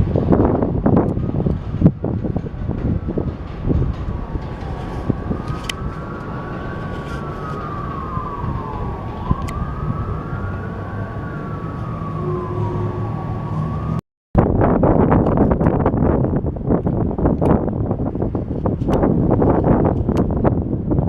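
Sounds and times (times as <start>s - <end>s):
low rumble: 0.0s - 21.0s
emergency siren wailing: 0.3s - 14.0s.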